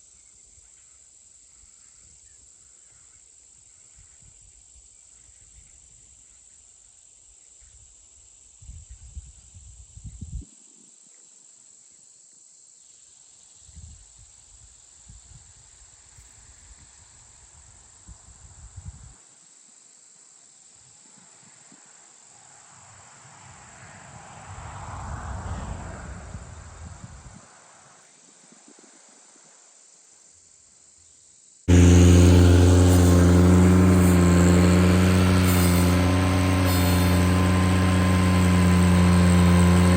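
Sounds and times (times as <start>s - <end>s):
wind rumble on microphone: 8.6s - 10.4s, 24.5s - 27.4s
vehicle passing: 23.4s - 26.8s, 31.7s - 39.9s
tractor engine running: 31.7s - 39.9s.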